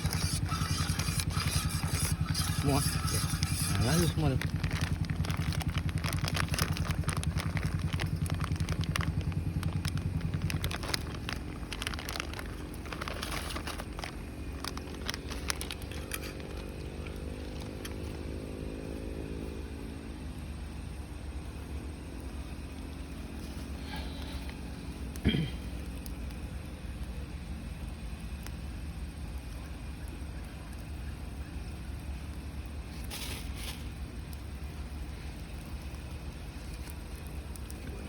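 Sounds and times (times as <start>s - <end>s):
engine rising in pitch: 0.0s - 20.4s
engine idling: 0.0s - 38.0s.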